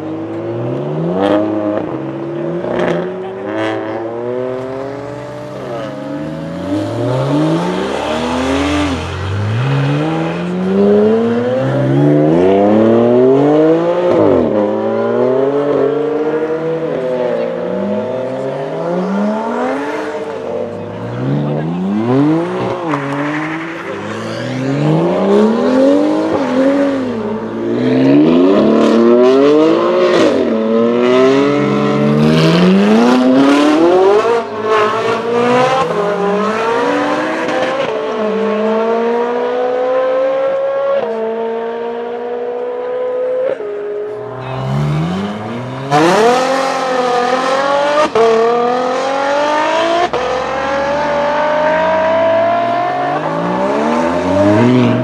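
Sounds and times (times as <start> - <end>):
sports cars accelerating hard: 0.0 - 55.0.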